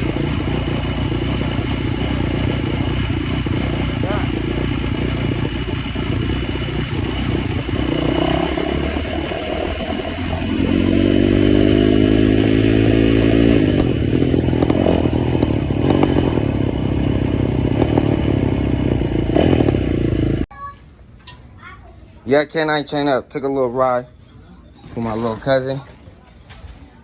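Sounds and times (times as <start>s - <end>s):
engine clattering: 0.0s - 20.5s
motorcycle engine running: 0.0s - 20.5s.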